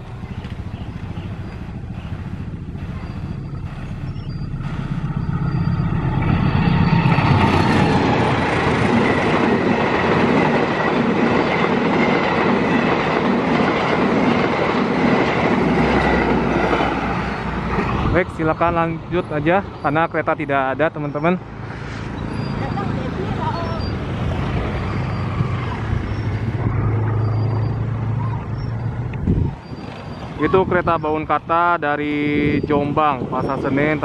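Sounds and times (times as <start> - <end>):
locomotive engine rumble: 0.0 - 34.0
train wheels clattering on rails: 4.5 - 18.2.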